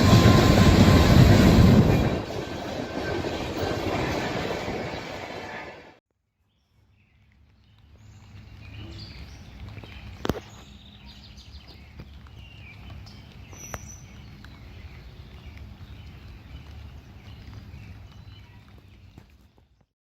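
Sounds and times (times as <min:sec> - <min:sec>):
birds chirping: 0:06.9 - 0:19.9.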